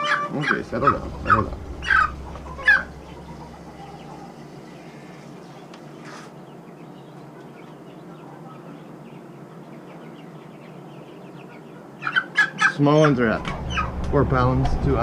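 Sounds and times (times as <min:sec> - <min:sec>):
chickens clucking and peeping: 0:00.0 - 0:15.0
low hum: 0:00.6 - 0:05.8, 0:13.4 - 0:15.0.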